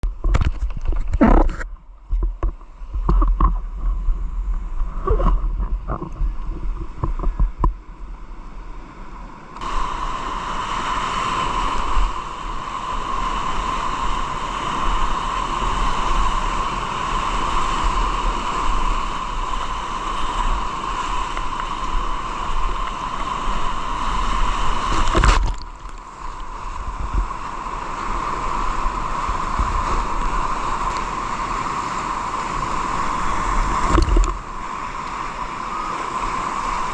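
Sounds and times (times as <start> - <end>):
wind on microphone: 0.0 - 36.9
river rushing roar: 9.3 - 36.9.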